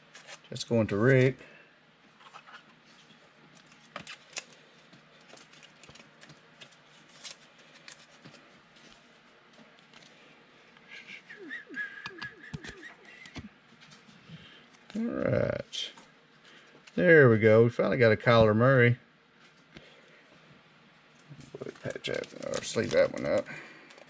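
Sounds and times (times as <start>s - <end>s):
cards clicking and rustling: 3.5s - 8.4s, 12.1s - 13.5s, 21.4s - 24.0s.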